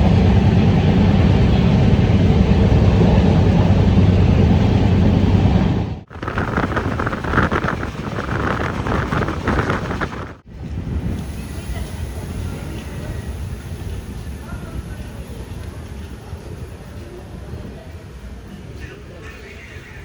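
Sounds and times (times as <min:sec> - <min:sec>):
wind on microphone: 0:00.0 - 0:19.3
train running rumble: 0:00.0 - 0:20.0
hissy train clatter: 0:11.0 - 0:20.0.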